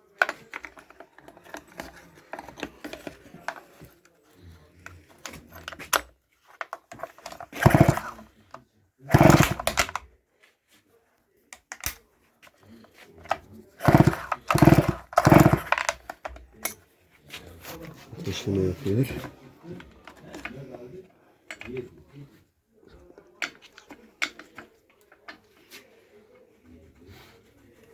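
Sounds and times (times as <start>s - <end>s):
chainsaw engine firing on pull-start: 7.1s - 8.2s, 9.1s - 10.0s, 13.8s - 16.2s.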